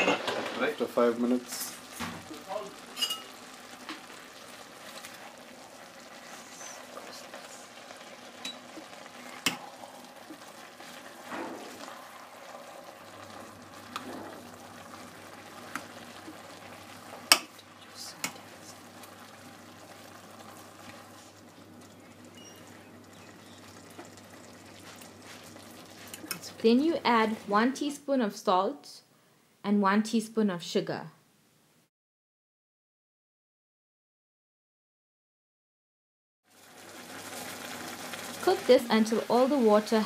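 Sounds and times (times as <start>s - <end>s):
vegetables sizzling in oil: 0.0s - 28.0s, 36.5s - 40.0s
spoon clinking against pot: 3.0s - 3.3s.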